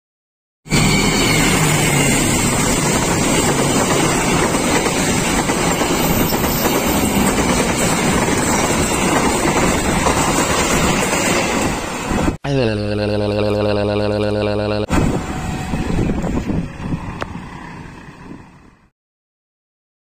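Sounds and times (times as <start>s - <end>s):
train wheels rushing on rails: 0.7s - 12.3s, 14.9s - 18.8s.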